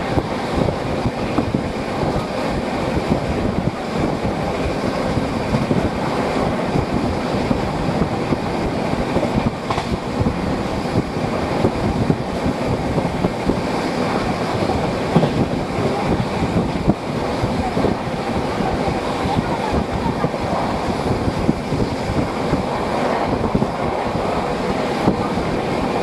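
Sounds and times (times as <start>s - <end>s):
train wheels rumbling on track: 0.0s - 26.0s
wind buffeting microphone: 0.0s - 26.0s.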